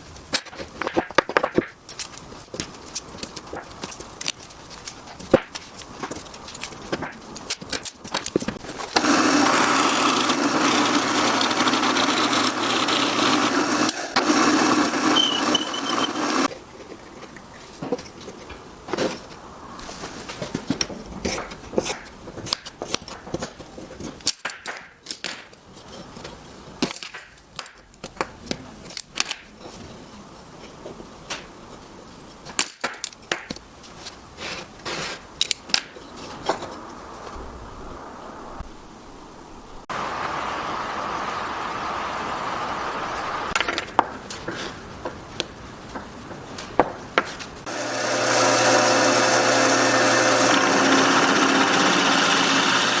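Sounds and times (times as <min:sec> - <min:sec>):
woodworking power tool running: 0:08.9 - 0:16.5, 0:47.7 - 0:53.0.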